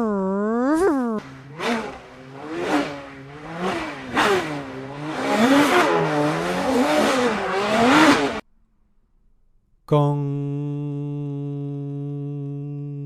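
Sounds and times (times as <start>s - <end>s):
car engine revving: 1.2s - 8.4s.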